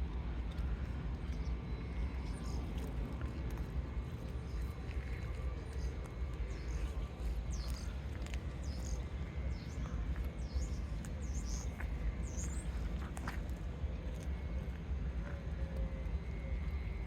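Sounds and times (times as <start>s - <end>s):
low rumble: 0.0s - 17.0s
small bird chirping: 6.5s - 13.0s.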